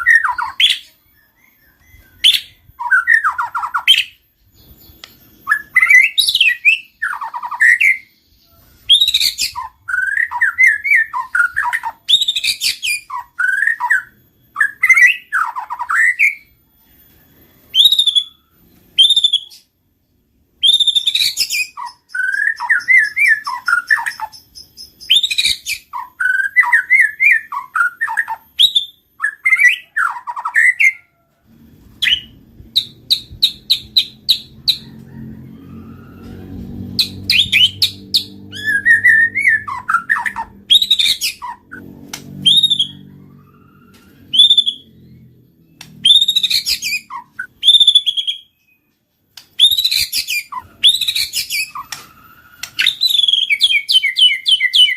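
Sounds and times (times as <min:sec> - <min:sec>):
bird singing whistled phrases: 0:00.0 - 0:04.2, 0:04.8 - 0:16.6, 0:20.6 - 0:31.1, 0:37.0 - 0:41.8, 0:42.4 - 0:45.2, 0:46.0 - 0:48.8, 0:49.6 - 0:54.9.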